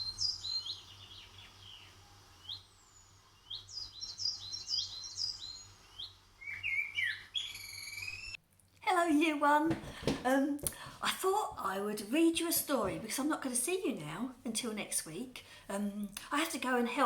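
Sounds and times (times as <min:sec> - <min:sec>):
songbird chirping: 0:00.0 - 0:08.4.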